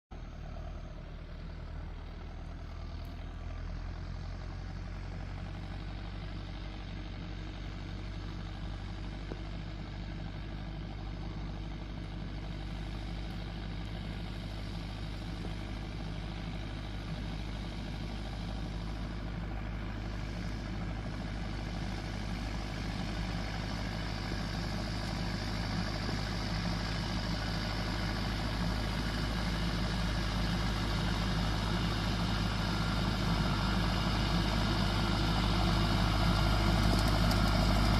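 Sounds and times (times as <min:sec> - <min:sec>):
tractor engine running: 0:00.1 - 0:37.9.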